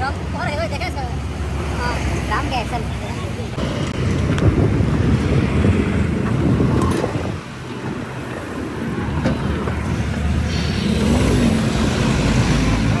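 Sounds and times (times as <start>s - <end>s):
vehicle rumble: 0.0s - 13.0s
wind buffeting microphone: 3.5s - 13.0s.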